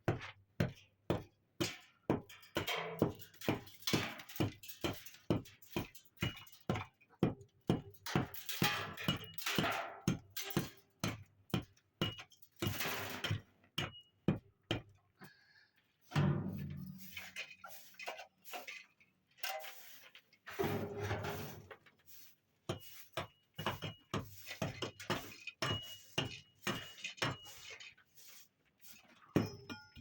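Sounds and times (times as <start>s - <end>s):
scraping noise: 19.6s - 21.7s
hard objects knocking and clinking: 29.3s - 30.0s.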